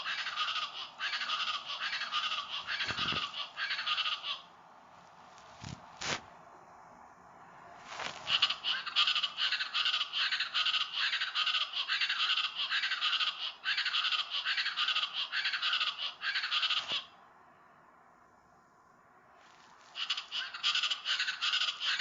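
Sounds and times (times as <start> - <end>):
bird calling with scratchy notes: 0.0 - 4.5, 7.8 - 17.1, 19.4 - 22.0.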